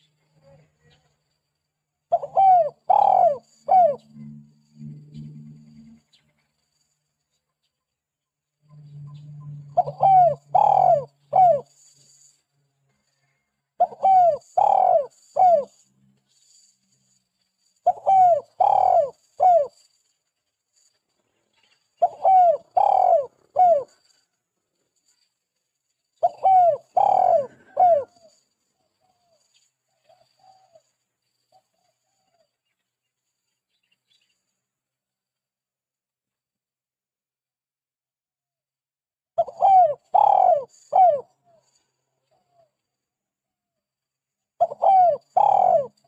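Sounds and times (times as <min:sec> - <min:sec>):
dove cooing: 0:02.1 - 0:05.9, 0:09.6 - 0:11.7, 0:13.8 - 0:15.8, 0:17.8 - 0:19.8, 0:22.0 - 0:24.1, 0:26.2 - 0:28.4, 0:39.4 - 0:41.6, 0:44.6 - 0:46.0.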